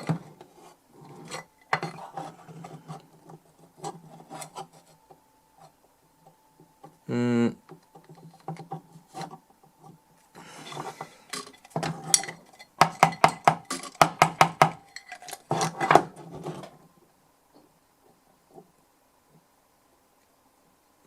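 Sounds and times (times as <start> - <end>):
metal scrape: 0.0 - 5.0.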